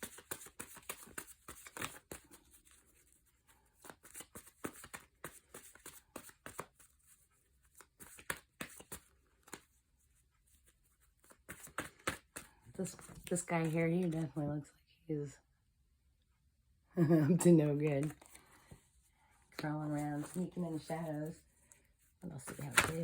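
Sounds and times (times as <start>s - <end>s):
cards being shuffled: 0.0s - 9.8s, 10.5s - 14.3s, 18.0s - 18.8s, 19.6s - 23.0s.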